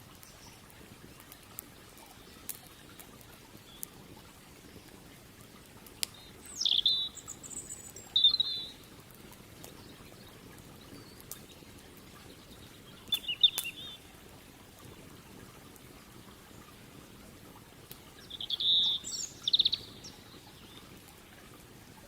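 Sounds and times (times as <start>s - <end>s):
bird chirps: 6.5s - 8.8s, 12.9s - 14.0s, 18.2s - 20.8s
high bird trill: 6.6s - 8.8s.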